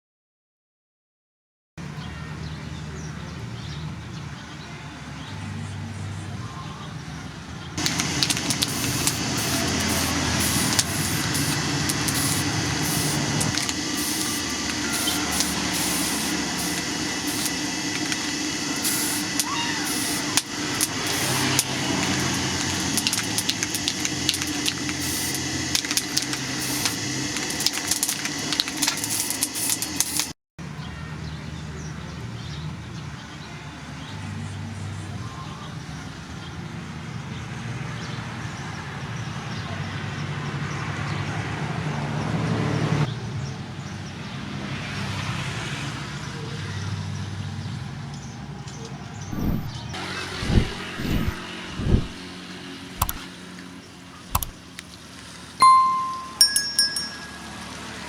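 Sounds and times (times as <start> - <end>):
machine hum: 7.8 - 30.3
motor running: 7.8 - 30.4, 49.3 - 53.4, 54.3 - 54.8.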